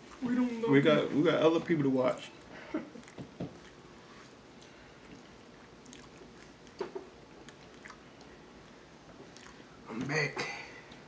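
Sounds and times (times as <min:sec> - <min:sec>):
person chewing: 0:04.5 - 0:06.8, 0:07.4 - 0:09.7.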